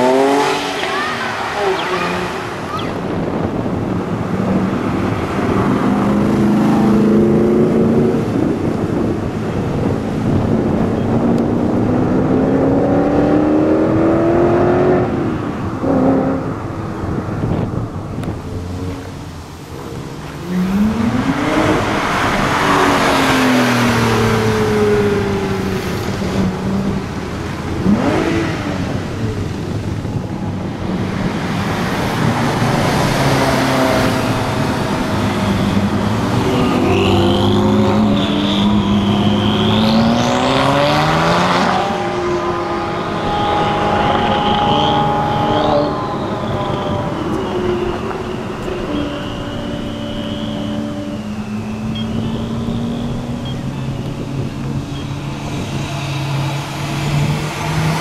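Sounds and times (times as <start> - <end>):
sports car engines revving: 0.0 - 58.0
high wavering squeal: 33.6 - 56.6.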